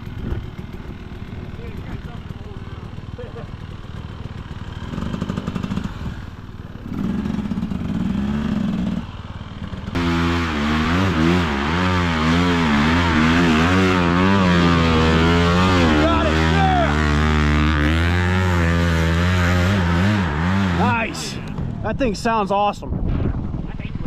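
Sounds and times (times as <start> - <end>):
dirt bike engine revving: 0.0 - 21.9.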